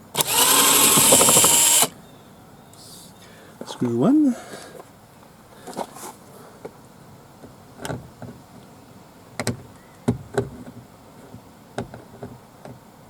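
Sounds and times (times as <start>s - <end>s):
screwdriver clicking on plastic: 0.1s - 1.9s.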